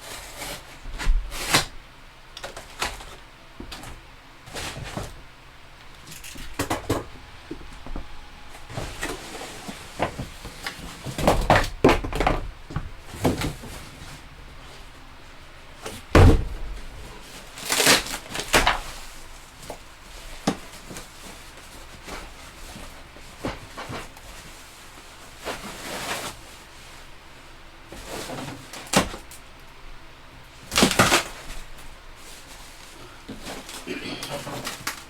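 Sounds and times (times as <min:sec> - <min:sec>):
scraping handling sounds: 0:02.4 - 0:14.9.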